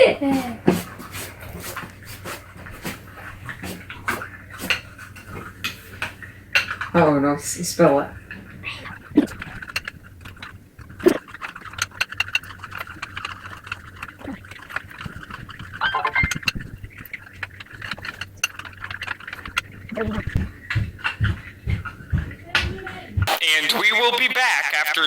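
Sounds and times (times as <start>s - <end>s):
steady motor hum: 0.0s - 23.3s.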